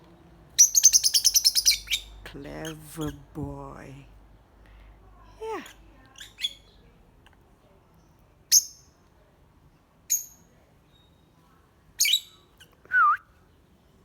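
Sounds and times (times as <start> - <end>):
bird chirping: 0.6 - 3.3.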